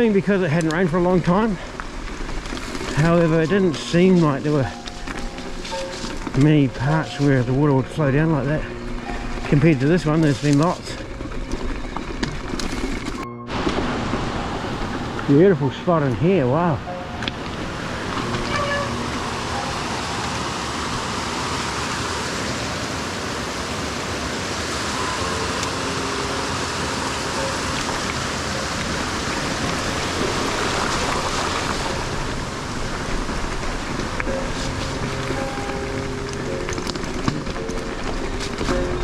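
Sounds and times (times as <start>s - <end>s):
faint music: 2.7s - 20.2s
water rushing: 13.5s - 39.0s.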